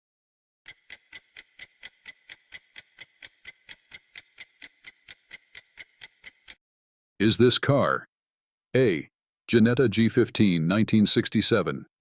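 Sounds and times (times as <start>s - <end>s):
clock ticking: 0.7s - 6.6s.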